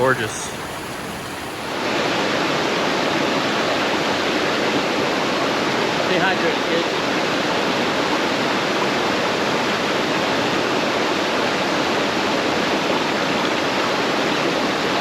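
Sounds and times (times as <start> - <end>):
water rushing over rocks: 0.0 - 6.2.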